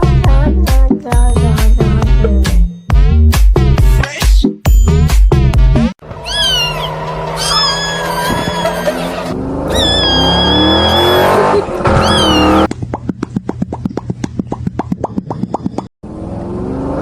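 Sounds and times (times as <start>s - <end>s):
engine revving: 6.0s - 12.7s, 16.0s - 17.0s
tire screech: 6.0s - 12.7s.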